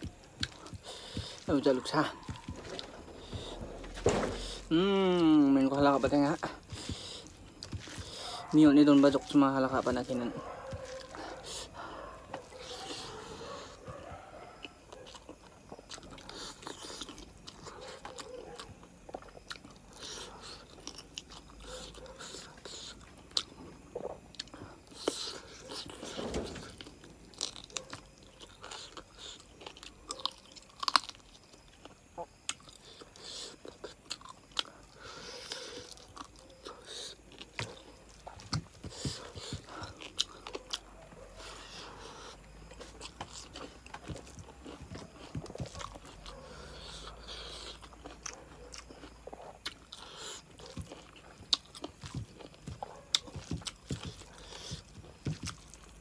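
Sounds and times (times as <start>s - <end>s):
person chewing with wet smacks: 0.0s - 3.6s, 5.0s - 26.0s, 26.9s - 56.0s.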